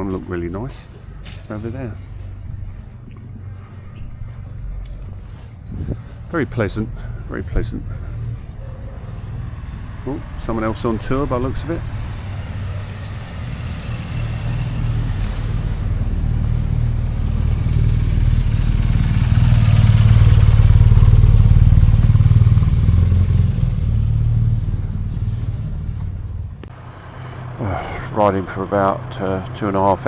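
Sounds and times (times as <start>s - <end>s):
motorcycle engine running: 0.0s - 30.0s
rushing noise: 26.7s - 30.0s.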